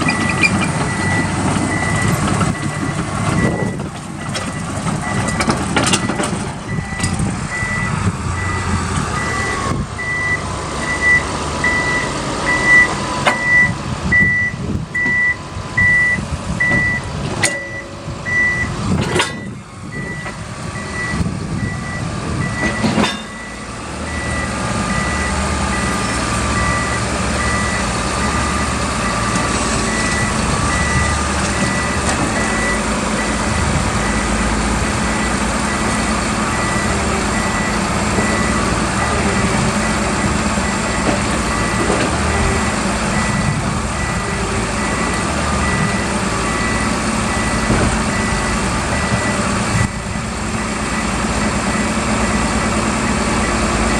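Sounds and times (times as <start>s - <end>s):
diesel engine running: 0.0s - 53.9s
backup alarm beeping: 0.1s - 26.0s, 29.9s - 39.5s, 40.2s - 51.1s
sharp metallic clanks: 17.3s - 18.1s, 19.0s - 19.6s, 22.6s - 23.5s.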